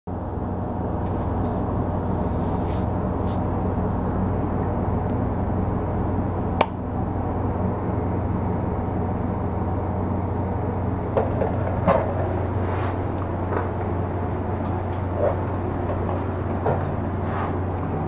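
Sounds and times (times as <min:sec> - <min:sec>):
sharp click: 0:06.6 - 0:06.8.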